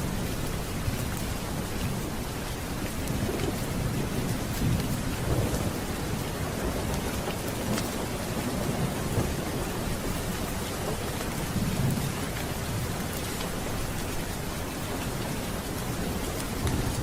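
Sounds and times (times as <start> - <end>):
steady rain: 0.0 - 17.0
low rolling thunder: 2.8 - 14.0.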